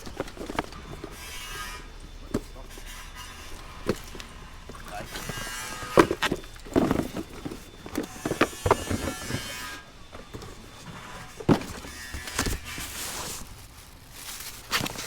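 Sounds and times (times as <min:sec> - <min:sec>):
hard objects knocking and clattering: 0:00.0 - 0:01.2, 0:03.6 - 0:12.8.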